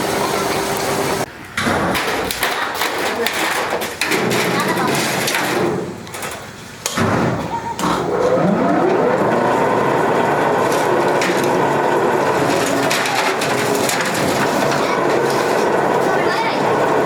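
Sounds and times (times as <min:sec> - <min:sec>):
clattering workshop machinery: 0:00.0 - 0:17.0
machine motor whine starting: 0:07.8 - 0:17.0.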